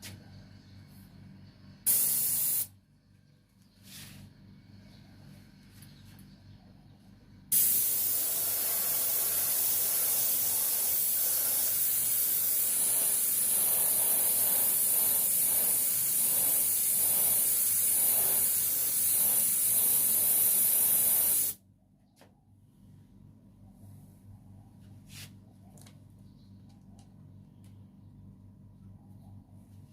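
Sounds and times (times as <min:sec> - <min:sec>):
spray nozzle hissing: 0:01.9 - 0:02.7, 0:07.5 - 0:21.6.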